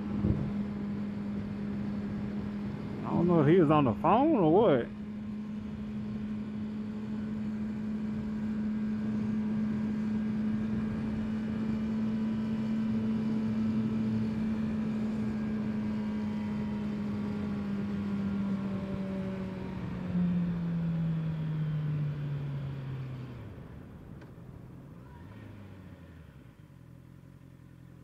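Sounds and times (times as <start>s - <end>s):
wind noise: 0.0s - 0.9s
motorcycle engine cruising: 0.0s - 28.0s.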